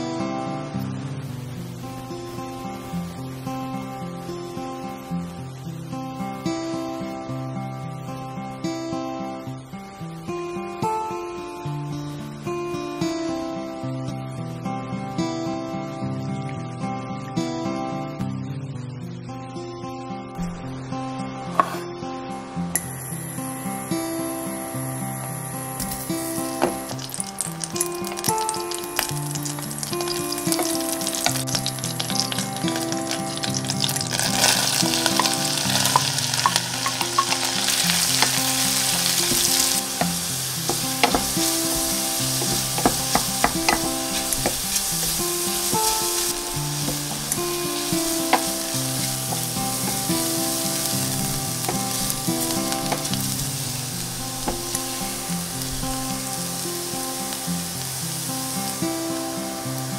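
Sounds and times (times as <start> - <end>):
soft background music: 0.0 - 59.9
leeks sizzling in a pan: 22.8 - 59.9
wooden spoon clicking on pan: 34.1 - 38.4, 39.3 - 45.2, 48.2 - 50.1.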